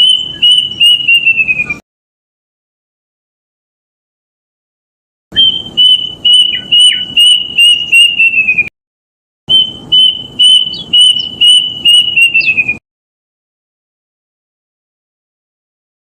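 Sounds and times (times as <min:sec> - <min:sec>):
cuckoo whistled song: 0:00.0 - 0:01.8, 0:05.4 - 0:08.7, 0:09.5 - 0:12.8.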